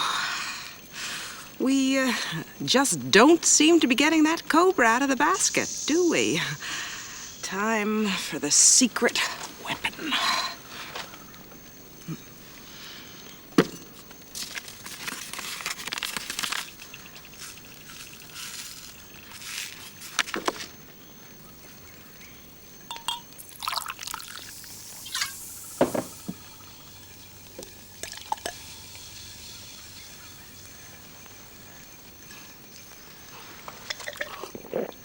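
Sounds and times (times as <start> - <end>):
liquid being poured: 14.8 - 20.4, 22.9 - 30.3, 33.6 - 35.0.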